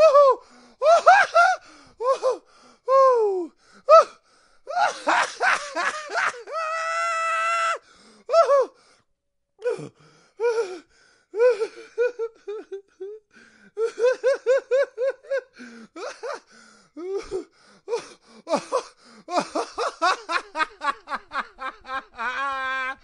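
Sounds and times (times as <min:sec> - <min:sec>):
person laughing: 0:04.8 - 0:06.5, 0:18.5 - 0:23.0.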